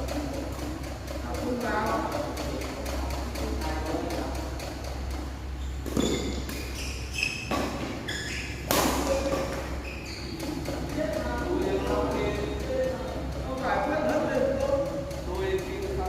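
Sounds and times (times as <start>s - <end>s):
rackets hitting shuttlecock: 4.4s - 11.4s
short high squeaks: 5.6s - 8.8s, 9.5s - 10.5s.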